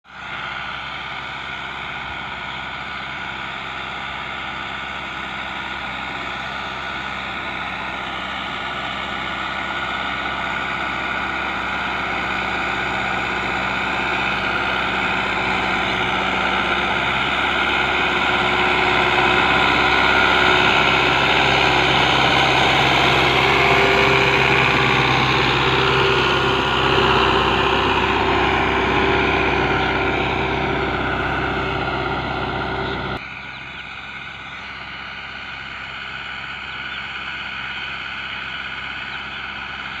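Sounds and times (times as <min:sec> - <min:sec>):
tractor engine running: 0:00.0 - 0:40.0.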